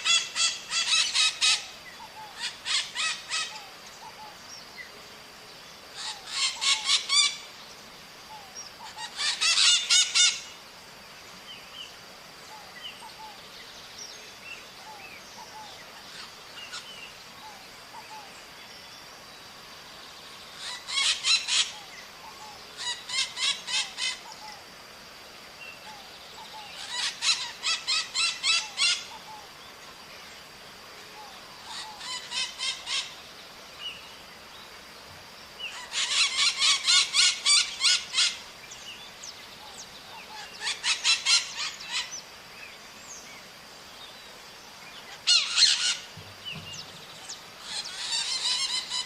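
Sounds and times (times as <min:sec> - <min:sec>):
parrots screeching: 0:00.0 - 0:01.7, 0:02.4 - 0:03.6, 0:06.0 - 0:07.4, 0:08.9 - 0:10.4, 0:20.6 - 0:21.8, 0:22.8 - 0:24.2, 0:26.8 - 0:29.1, 0:31.7 - 0:33.1, 0:35.7 - 0:38.4, 0:40.3 - 0:42.1, 0:45.2 - 0:46.1, 0:47.6 - 0:49.0.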